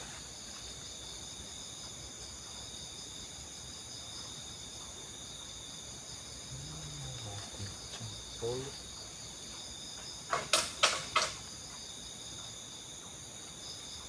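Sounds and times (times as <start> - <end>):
insects buzzing: 0.0 - 14.0.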